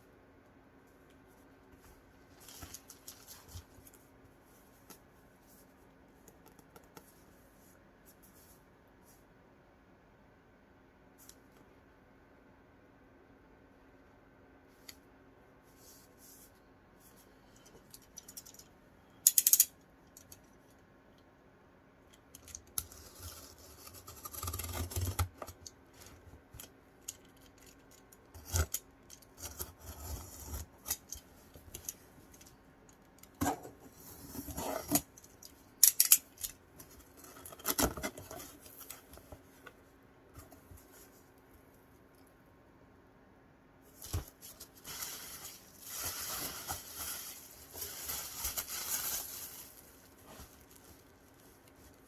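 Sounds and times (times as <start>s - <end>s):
parcel scratching and rustling: 43.9s - 52.0s.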